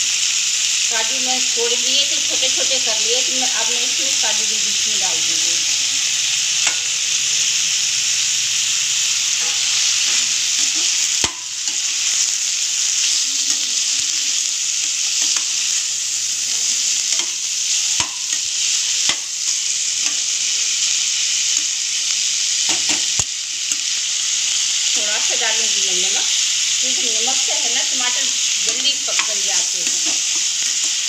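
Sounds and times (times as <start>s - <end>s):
food sizzling in hot oil: 0.0s - 31.0s
steel spoon knocking pan: 9.4s - 11.8s, 18.0s - 18.4s.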